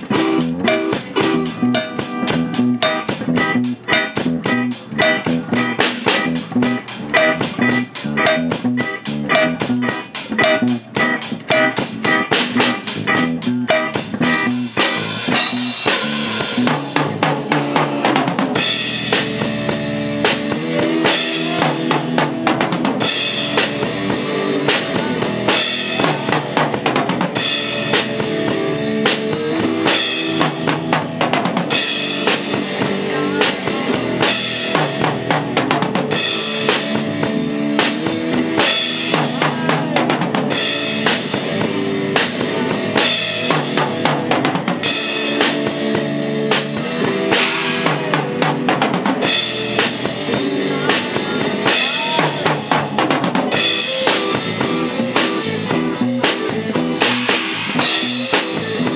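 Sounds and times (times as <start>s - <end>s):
band playing instrumental: 0.0s - 58.9s
drum kit beat: 0.0s - 58.9s.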